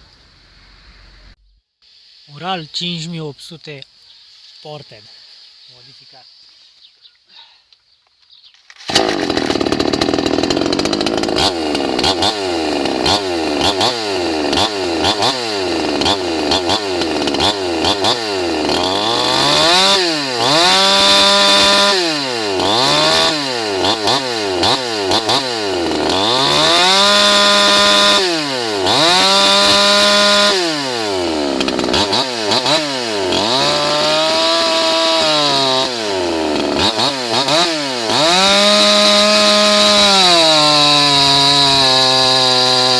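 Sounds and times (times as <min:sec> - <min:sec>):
chainsaw cutting wood: 0:08.7 - 0:42.9.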